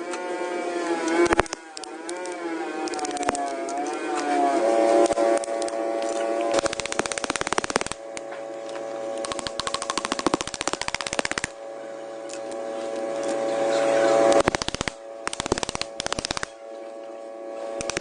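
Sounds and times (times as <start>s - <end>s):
tool whine: 0.0s - 18.0s
pneumatic impact tool hammering: 14.4s - 16.5s.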